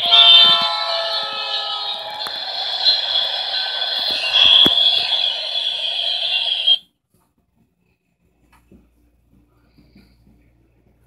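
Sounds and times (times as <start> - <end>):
train wheels on rails: 0.0 - 6.8.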